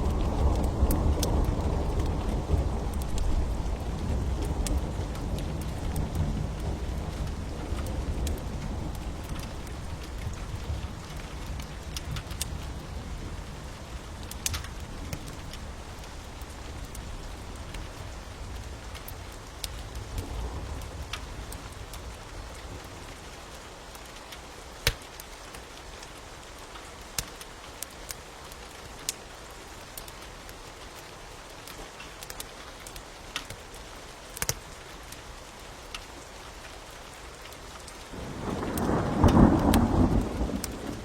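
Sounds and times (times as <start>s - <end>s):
thunder rumbling: 0.0s - 18.9s, 38.1s - 41.0s
steady rain: 0.0s - 41.0s
wood fire crackling: 0.0s - 41.0s.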